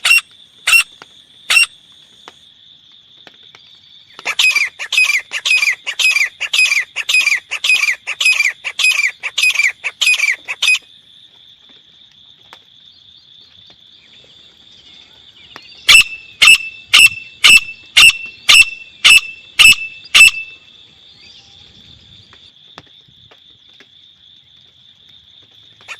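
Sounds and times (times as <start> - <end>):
francolin calling: 0.0 - 1.8, 4.0 - 10.9, 14.0 - 21.8.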